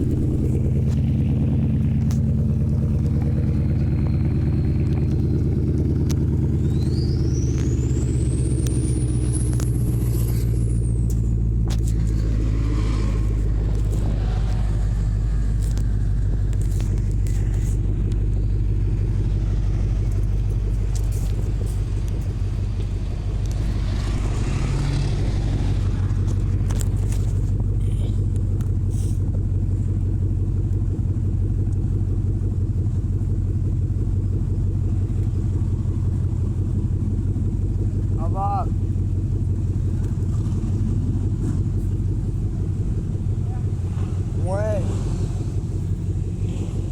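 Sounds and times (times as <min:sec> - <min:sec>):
faint passing traffic: 0:00.0 - 0:28.4
car engine idling: 0:00.0 - 0:46.9.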